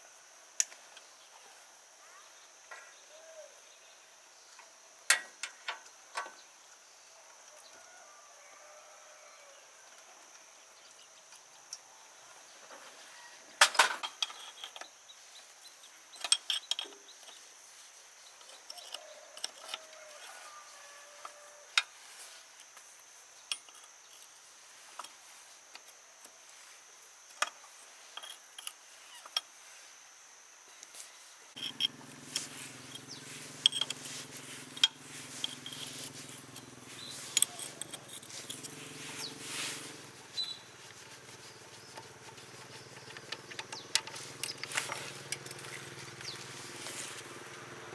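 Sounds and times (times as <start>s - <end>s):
metallic clinks of hand tools: 31.6s - 39.4s.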